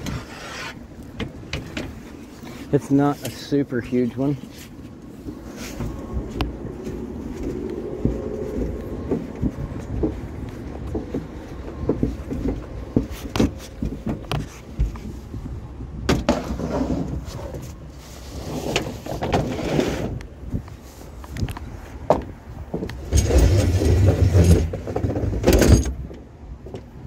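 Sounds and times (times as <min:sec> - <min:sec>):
vehicle idling: 0:00.0 - 0:16.0.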